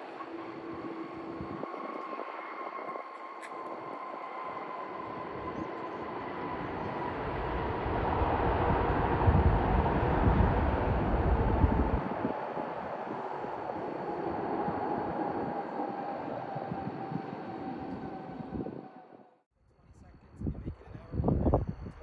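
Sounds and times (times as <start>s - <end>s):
jet airliner engines rushing: 0.0s - 19.3s
faint steady whine: 0.0s - 22.0s
deep rumble: 4.6s - 18.7s.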